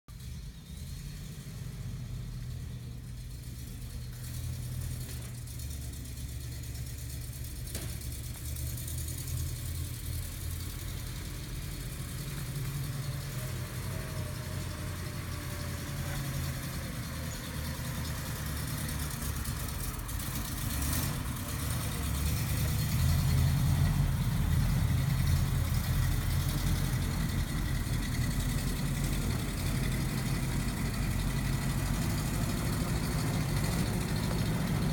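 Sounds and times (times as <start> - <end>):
truck engine idling: 0.1 - 34.9.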